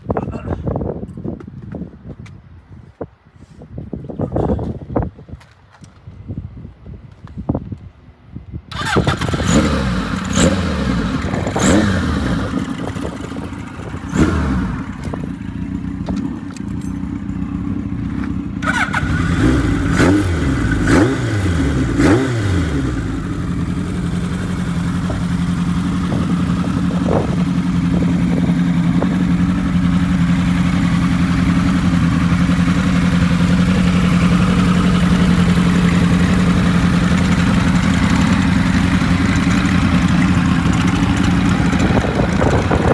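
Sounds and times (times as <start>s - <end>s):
motorcycle engine revving and idling: 8.7s - 42.9s.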